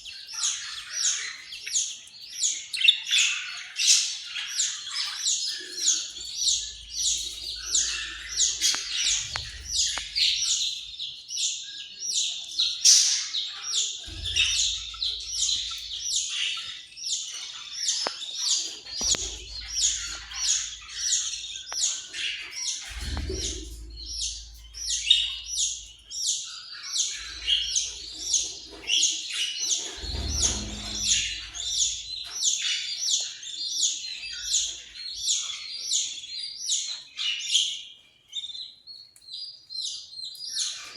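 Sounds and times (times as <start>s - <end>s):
budgerigars chirping and warbling: 0.0s - 40.9s
faint low rumbles: 14.0s - 16.4s, 18.8s - 26.2s, 29.9s - 32.2s.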